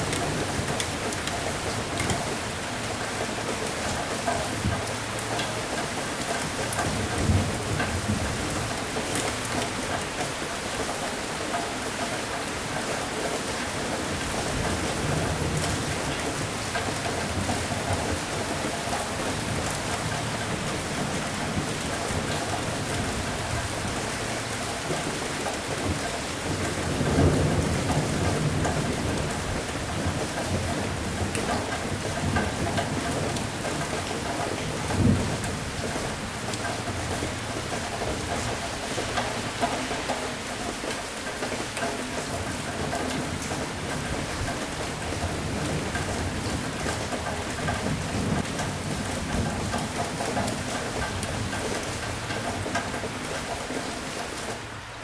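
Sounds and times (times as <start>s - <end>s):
steady rain falling: 0.0s - 55.0s
thunder rumbling: 13.5s - 54.5s.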